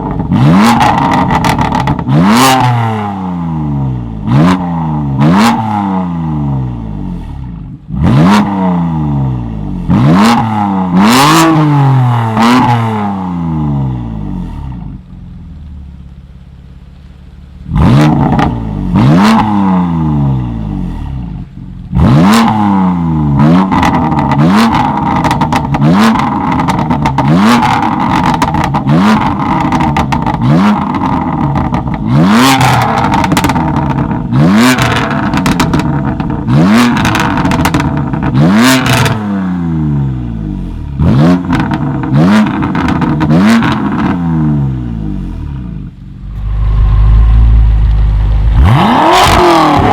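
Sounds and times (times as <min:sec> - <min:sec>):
car engine revving: 0:00.0 - 0:15.5, 0:17.6 - 0:49.9
exhaust pops and cracks: 0:32.9 - 0:34.2, 0:34.8 - 0:36.4.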